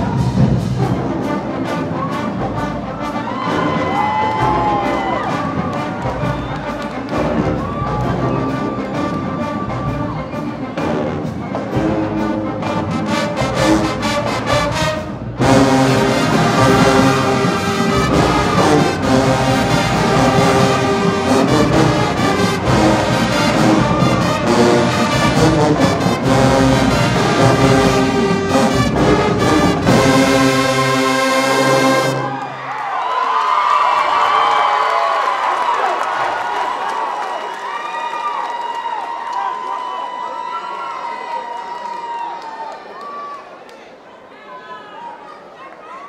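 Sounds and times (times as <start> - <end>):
marching band playing: 0.0 - 32.7.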